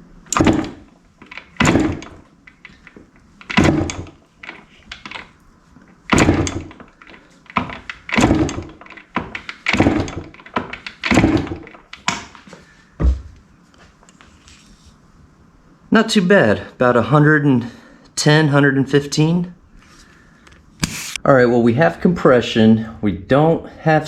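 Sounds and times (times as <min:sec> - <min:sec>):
dull thump: 0:00.3 - 0:00.9, 0:01.6 - 0:02.3, 0:03.5 - 0:04.2, 0:06.1 - 0:06.9, 0:07.5 - 0:11.8, 0:13.0 - 0:13.4
two-stroke engine kicked over: 0:00.3 - 0:02.3, 0:03.4 - 0:05.2, 0:06.1 - 0:12.3.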